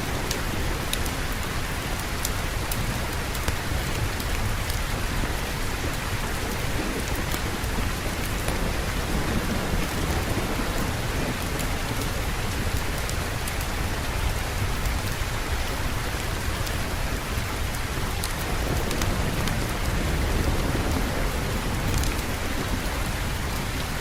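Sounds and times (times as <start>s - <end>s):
distant thunder rumbling: 0.0s - 24.0s
faint raindrop ticks: 0.0s - 24.0s
heavy rain hissing: 0.0s - 24.0s.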